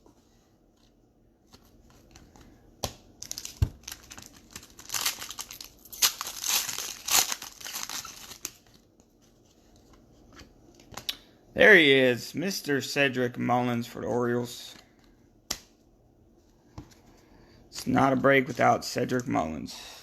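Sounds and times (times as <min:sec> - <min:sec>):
card pack wrapper crinkling: 0:03.2 - 0:08.8.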